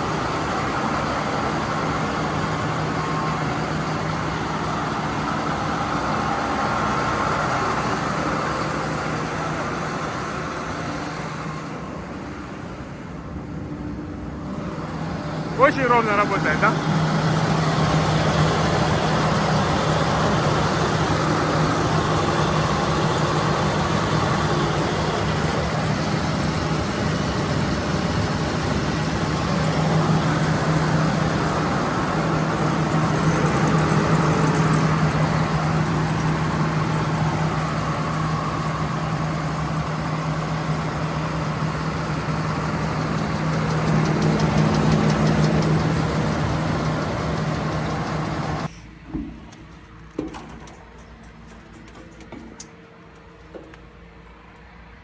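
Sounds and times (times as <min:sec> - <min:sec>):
diesel engine droning: 0:00.0 - 0:55.0.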